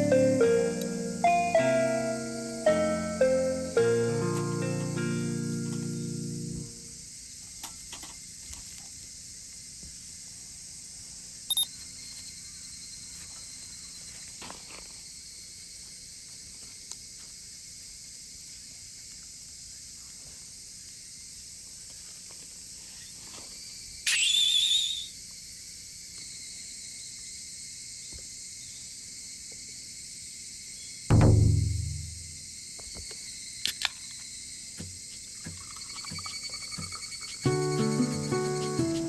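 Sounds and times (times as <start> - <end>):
insects chirping: 0.0 - 39.0
high-pitched call: 24.1 - 25.1.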